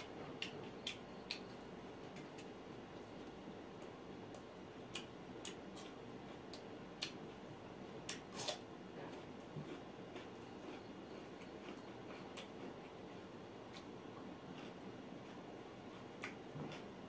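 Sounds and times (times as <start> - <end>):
chewing mouth clicks and smacks: 0.4 - 2.5.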